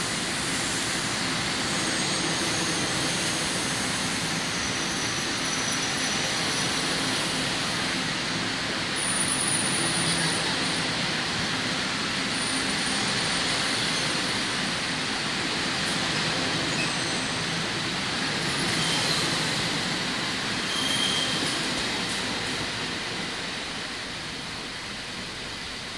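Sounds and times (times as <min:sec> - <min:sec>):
train wheels rumbling on rail: 0:00.0 - 0:25.9
high-pitched wheel squeals: 0:09.0 - 0:10.8, 0:16.7 - 0:17.5, 0:18.6 - 0:21.7.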